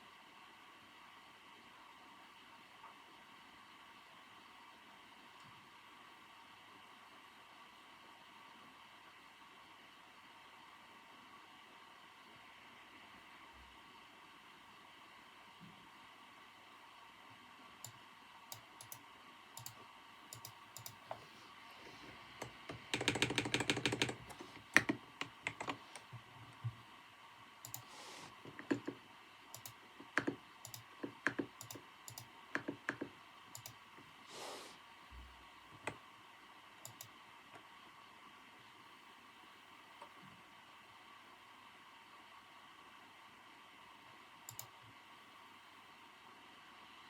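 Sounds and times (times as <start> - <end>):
faint room hum: 0.0 - 47.0
keyboard key clicks: 22.4 - 26.1.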